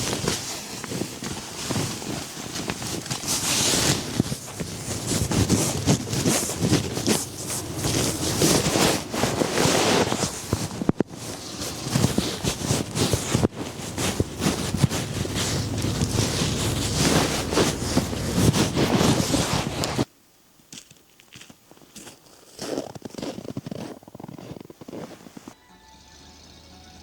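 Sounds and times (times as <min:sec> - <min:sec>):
gusty wind buffeting microphone: 0:00.0 - 0:20.1.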